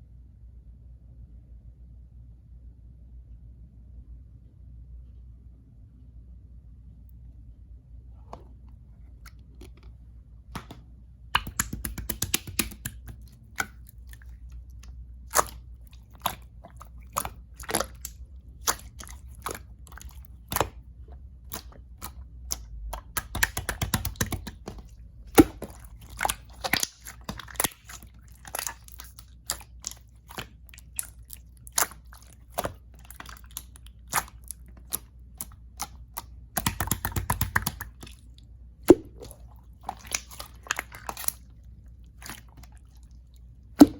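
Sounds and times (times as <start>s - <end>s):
slime clicking and popping: 11.4s - 14.0s, 15.3s - 20.8s, 21.5s - 38.2s, 38.9s - 41.4s.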